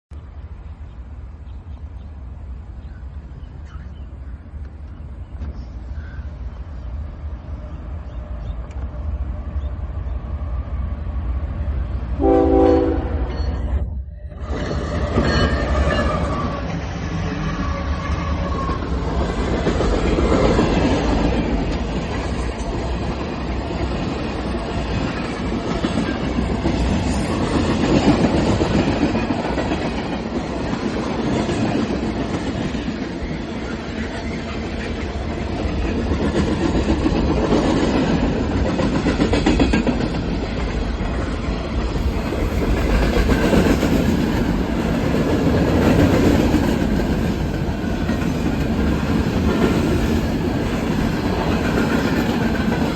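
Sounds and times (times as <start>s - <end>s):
train rumbling on rails: 0.1s - 52.9s
train wheel clatter: 14.4s - 52.9s.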